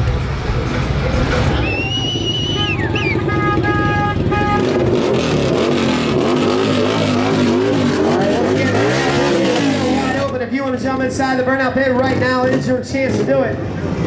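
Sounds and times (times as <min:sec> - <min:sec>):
engine revving hard: 0:02.3 - 0:11.2, 0:11.8 - 0:14.0.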